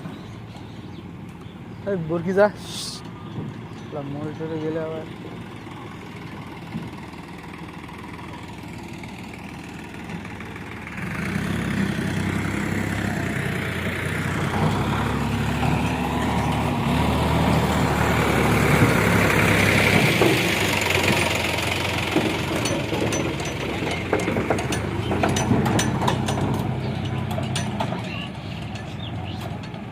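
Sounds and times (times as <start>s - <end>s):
heavy diesel engine under load: 0.0s - 29.9s
sharp clicks and rattles: 18.7s - 29.9s.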